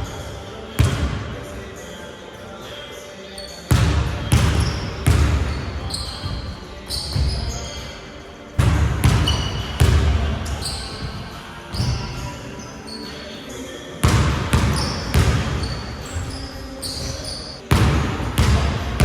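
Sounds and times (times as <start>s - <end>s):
sneakers squeaking: 0.0s - 19.0s
basketball bouncing on gym floor: 0.8s - 1.4s, 3.7s - 7.8s, 8.6s - 12.3s, 14.0s - 19.0s.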